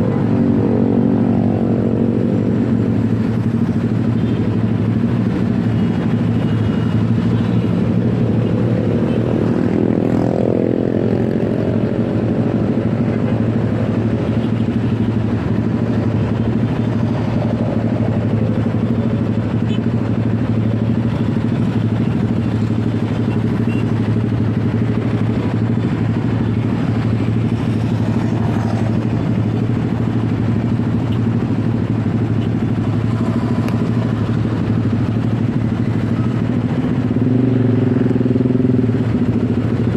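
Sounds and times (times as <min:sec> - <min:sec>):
motorcycle engine running: 0:00.0 - 0:39.9
road noise: 0:00.0 - 0:39.9.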